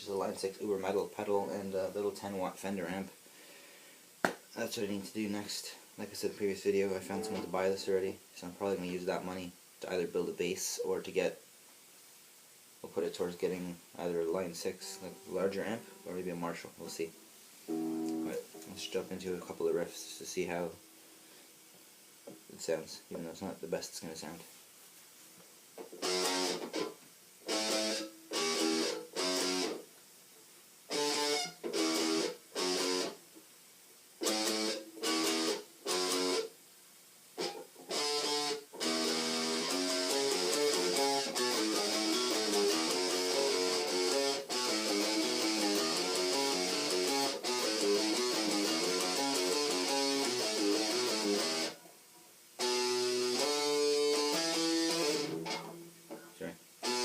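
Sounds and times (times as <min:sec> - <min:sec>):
distorted electric guitar riff: 0:06.8 - 0:07.8, 0:14.3 - 0:16.1, 0:17.7 - 0:19.0, 0:26.0 - 0:29.8, 0:30.9 - 0:33.2, 0:34.2 - 0:36.5, 0:37.4 - 0:51.8, 0:52.6 - 0:57.0.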